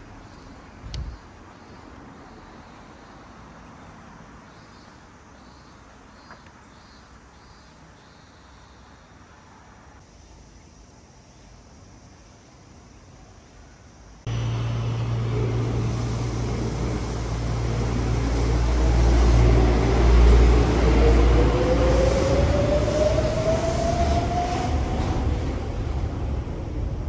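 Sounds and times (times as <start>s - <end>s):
low hum: 14.3s - 23.0s
rising motor whine: 14.3s - 25.8s
monorail train running: 14.3s - 27.0s.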